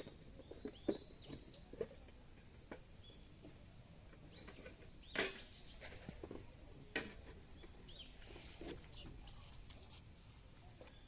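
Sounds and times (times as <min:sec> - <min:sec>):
bird chirps: 0:00.0 - 0:01.8, 0:07.6 - 0:09.6.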